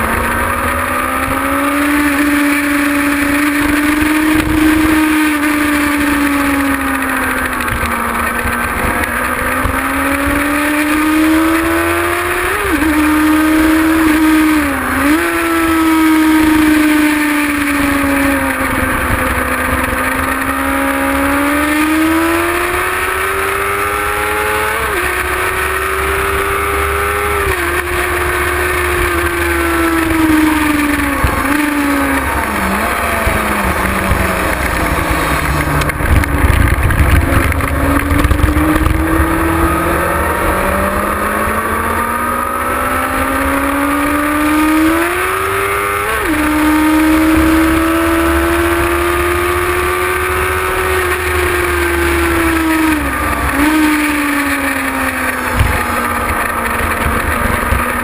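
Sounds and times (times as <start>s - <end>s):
motorcycle engine revving: 0.0s - 58.0s
steady rush of noise: 28.2s - 41.6s
low rumble: 32.2s - 40.4s.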